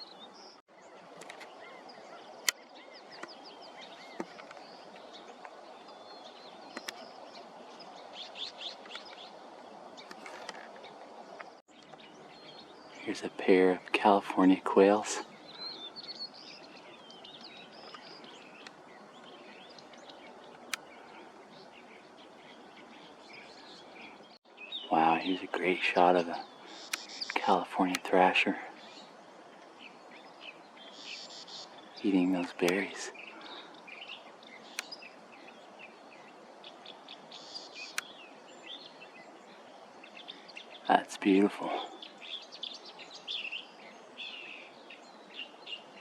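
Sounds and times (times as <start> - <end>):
small birds chirping and twittering: 0.0 - 46.0
steady background hiss: 0.1 - 46.0
sharp clicks: 26.8 - 28.1.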